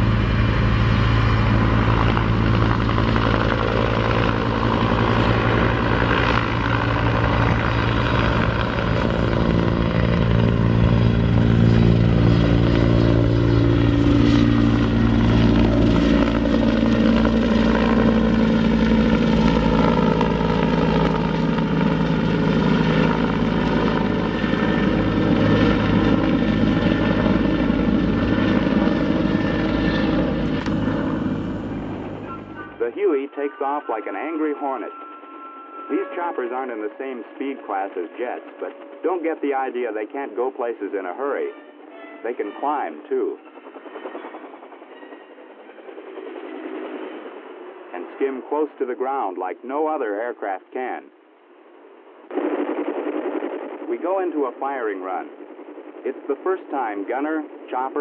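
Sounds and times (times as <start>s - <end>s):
helicopter drone: 0.0s - 58.0s.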